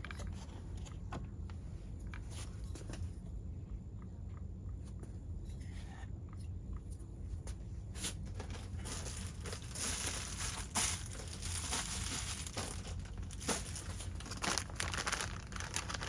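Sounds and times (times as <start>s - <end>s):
packaging crinkling and rustling: 8.1s - 16.0s.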